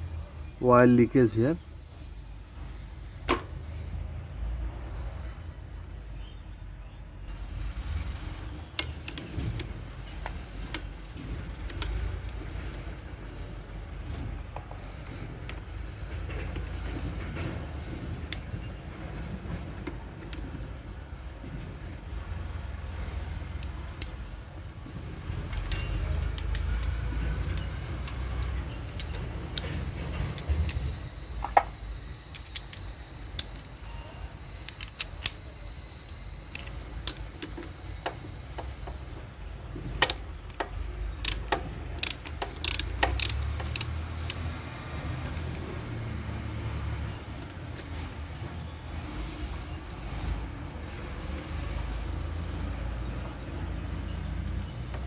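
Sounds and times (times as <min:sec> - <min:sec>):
metal tools clinking: 0:03.3 - 0:03.9, 0:22.6 - 0:55.0.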